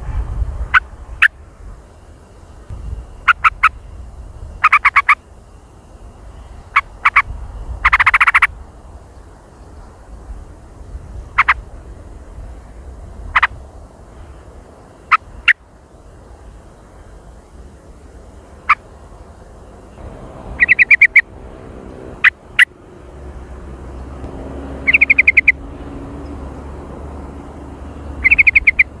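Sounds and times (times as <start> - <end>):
low background hum: 0.0 - 29.0
bird rattling trill: 3.1 - 3.9, 4.5 - 5.2, 6.7 - 8.5, 11.3 - 11.6, 20.5 - 21.3, 24.8 - 25.6, 28.2 - 29.0
bird calling sharp notes: 3.2 - 3.9, 4.6 - 5.3, 6.7 - 8.5, 11.3 - 11.6, 15.0 - 15.6, 19.8 - 22.8, 24.8 - 25.7, 28.1 - 29.0.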